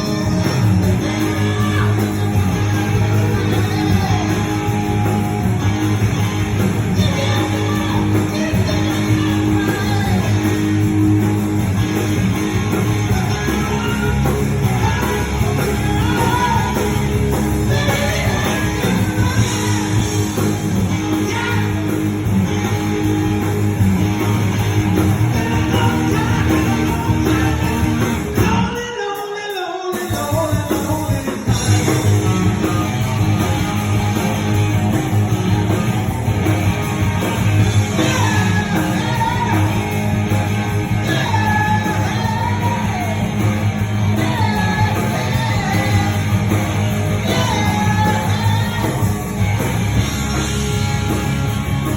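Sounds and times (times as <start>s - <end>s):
man singing: 0.0s - 10.9s, 12.7s - 22.1s, 25.0s - 33.8s, 37.8s - 49.4s
rock and roll band playing: 0.0s - 51.9s.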